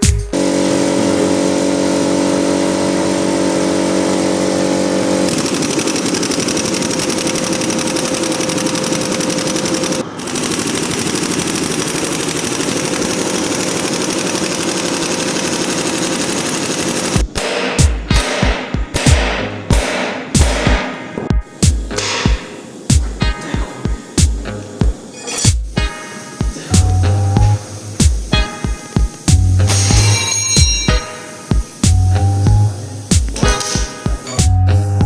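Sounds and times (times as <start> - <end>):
machine rattling: 5.2 - 21.0, 27.6 - 32.0.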